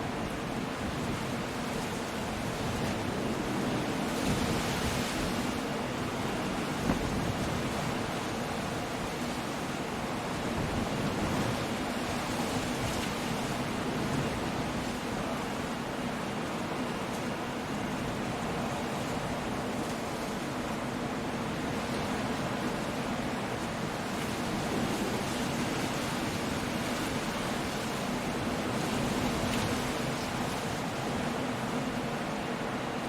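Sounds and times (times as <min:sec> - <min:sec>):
rain: 0:00.0 - 0:33.0
wind: 0:00.0 - 0:33.0.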